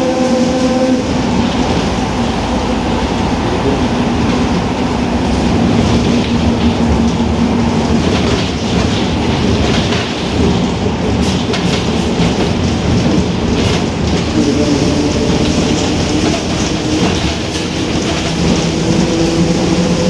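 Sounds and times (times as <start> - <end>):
bus differential whining: 0.0 - 20.0
drivetrain and road rumble: 1.3 - 11.1.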